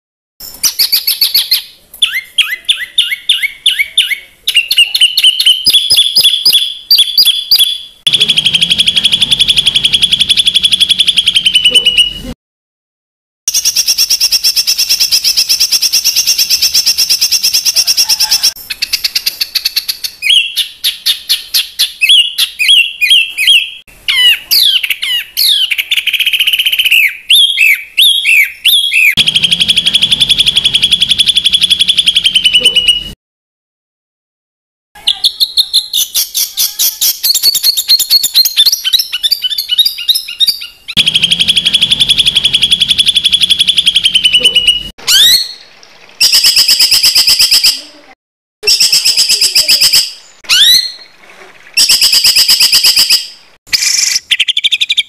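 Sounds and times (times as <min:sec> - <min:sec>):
bird trills: 0:00.4 - 0:12.3, 0:13.5 - 0:33.1, 0:35.4 - 0:45.6
songbird harsh call phrases: 0:20.2 - 0:33.1, 0:48.6 - 0:51.0.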